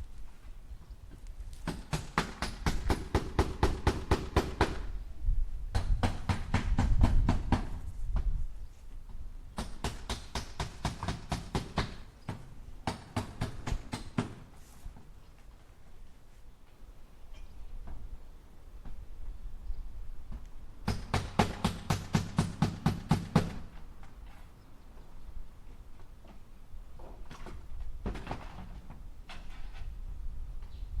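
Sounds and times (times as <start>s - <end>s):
hammer driving nails into wood: 20.9s - 23.6s.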